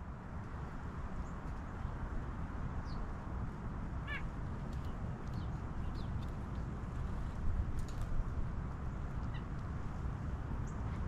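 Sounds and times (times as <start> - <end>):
wild birds chirping: 5.2 - 6.3.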